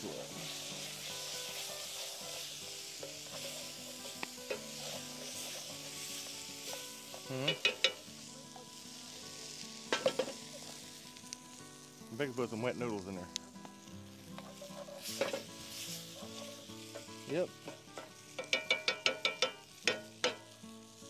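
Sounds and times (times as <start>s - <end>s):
meat sizzling in a pan: 0.0s - 21.0s
utensil scraping a pan: 0.8s - 8.0s, 14.4s - 20.4s.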